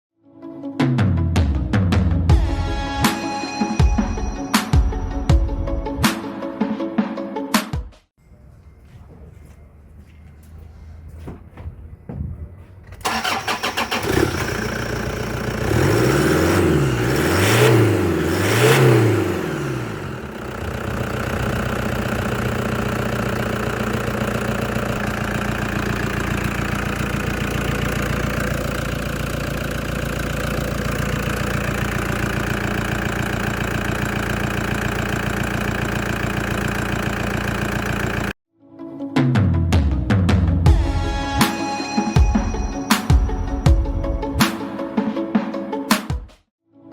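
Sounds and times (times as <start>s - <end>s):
engine cranking and starting: 12.7s - 38.4s
engine revving and idling: 13.0s - 38.4s.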